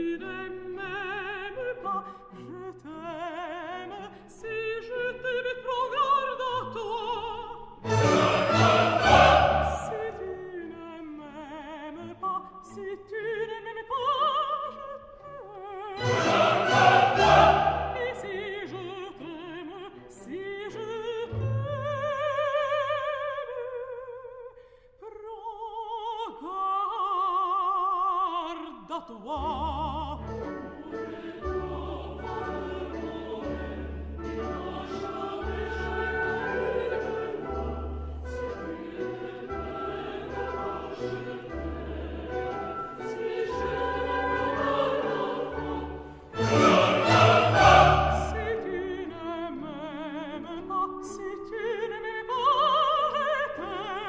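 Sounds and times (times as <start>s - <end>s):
orchestra playing: 7.8s - 10.5s, 16.0s - 18.9s, 30.2s - 49.0s
operatic solo singing: 7.8s - 10.7s, 16.0s - 19.3s, 38.5s - 49.1s.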